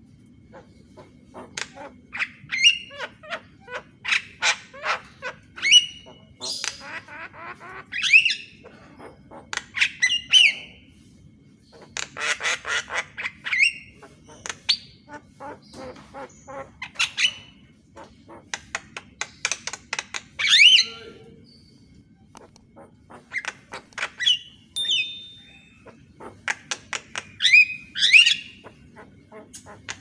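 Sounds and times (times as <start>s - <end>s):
myna bird singing: 22.4s - 30.0s.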